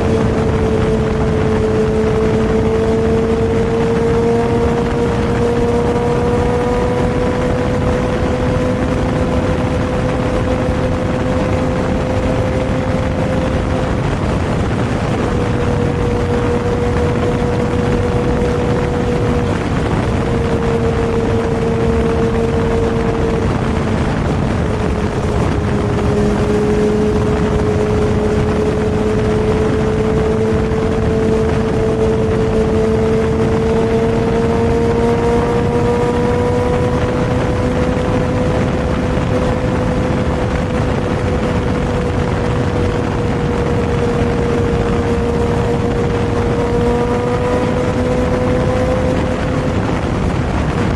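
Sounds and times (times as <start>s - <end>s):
motorcycle engine running: 0.0s - 50.9s
wind and road noise: 0.0s - 50.9s.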